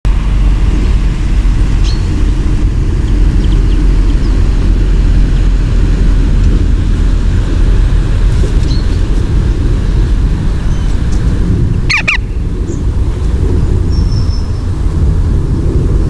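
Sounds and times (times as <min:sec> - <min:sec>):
low outdoor rumble: 0:00.0 - 0:16.0
faint high bird chirps: 0:01.8 - 0:02.4, 0:08.6 - 0:09.0, 0:11.9 - 0:12.8, 0:13.9 - 0:14.7.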